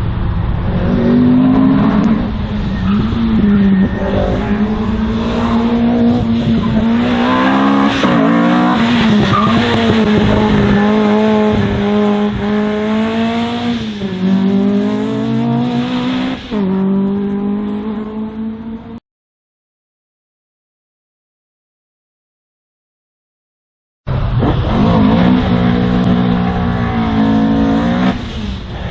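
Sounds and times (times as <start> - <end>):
race car engine revving: 0.0 - 19.0, 24.1 - 28.9
tyre squeal: 2.2 - 6.0, 6.6 - 11.7.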